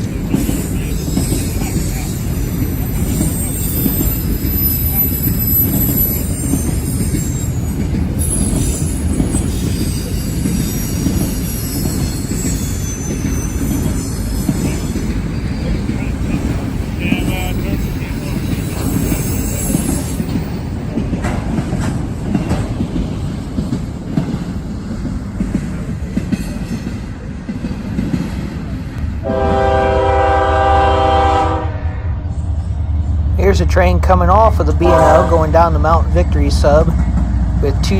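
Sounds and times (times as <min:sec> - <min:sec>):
rail clicks: 0:00.0 - 0:31.0, 0:32.2 - 0:37.9
freight train rumbling: 0:00.0 - 0:37.9
high-pitched wheel squeal: 0:00.5 - 0:16.2
locomotive air horn chord: 0:29.2 - 0:32.2, 0:34.8 - 0:35.6.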